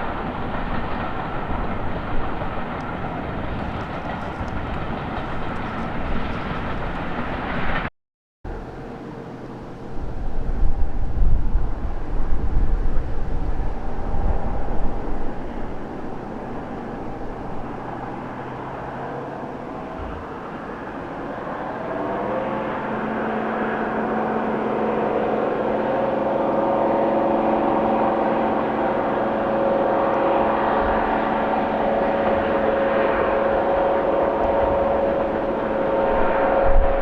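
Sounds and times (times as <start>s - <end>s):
diesel locomotive engine approaching: 0.0s - 7.9s, 8.5s - 37.0s.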